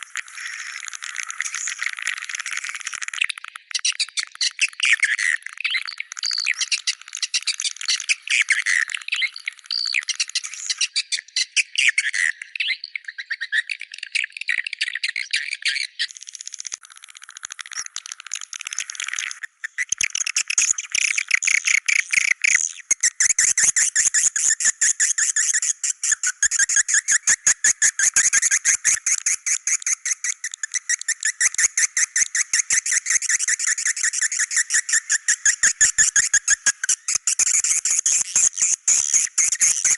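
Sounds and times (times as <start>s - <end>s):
swiftlets chirping and clicking: 5.6s - 10.7s, 16.0s - 23.4s, 27.8s - 39.9s.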